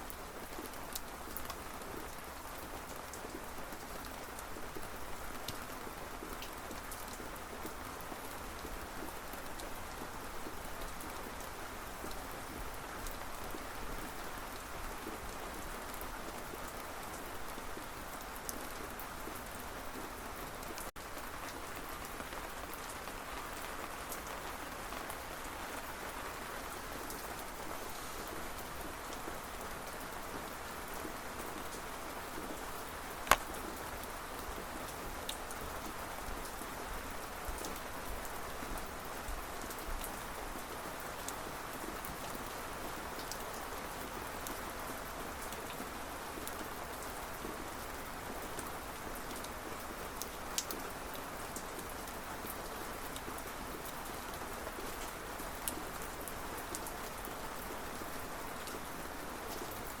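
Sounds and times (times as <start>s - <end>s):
rain falling: 0.0s - 60.0s.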